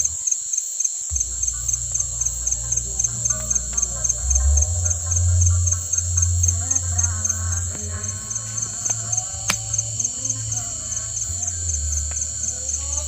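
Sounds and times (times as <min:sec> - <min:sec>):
crickets chirping: 0:00.0 - 0:13.0
faint distant music: 0:01.1 - 0:13.0
low rumble: 0:01.1 - 0:13.0
sharp crack: 0:05.8 - 0:13.0.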